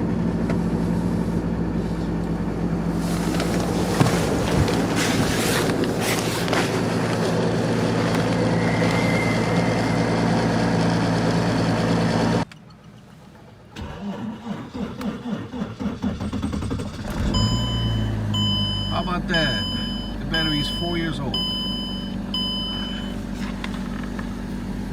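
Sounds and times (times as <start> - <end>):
engine running: 0.0 - 12.4, 13.8 - 24.9
starter cranking engine: 13.8 - 24.9.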